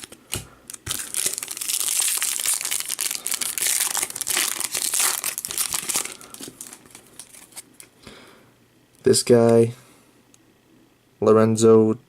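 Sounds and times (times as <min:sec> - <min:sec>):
wrapper crinkling: 0:00.0 - 0:07.9.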